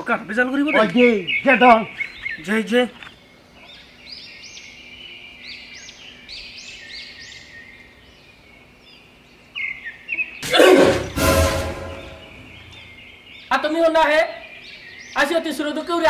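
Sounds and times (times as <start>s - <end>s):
bird chirping: 0.0s - 16.0s
loud sudden burst: 10.4s - 12.7s.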